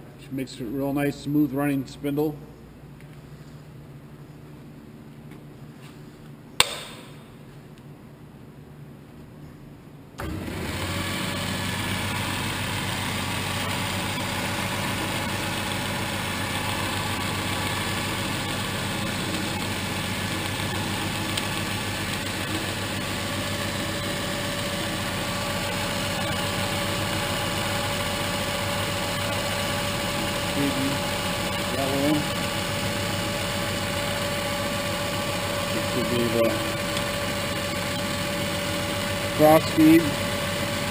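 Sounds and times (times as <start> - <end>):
lathe running: 10.2 - 40.9.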